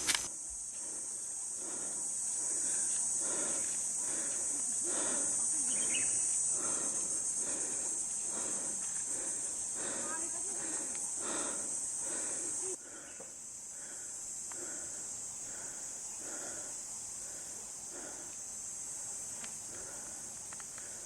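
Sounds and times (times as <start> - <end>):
insects chorus: 0.0 - 21.0
distant voices murmuring: 1.6 - 13.2.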